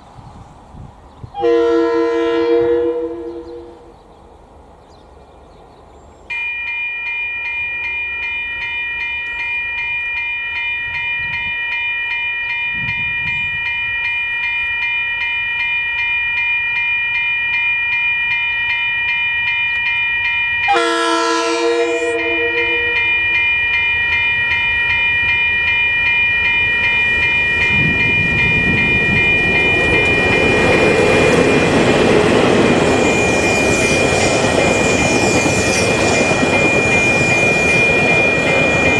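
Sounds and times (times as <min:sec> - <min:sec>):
train horn blast: 0:01.4 - 0:03.9, 0:20.7 - 0:23.3
level crossing bells ringing: 0:06.3 - 0:38.9
train rumble: 0:17.5 - 0:38.9.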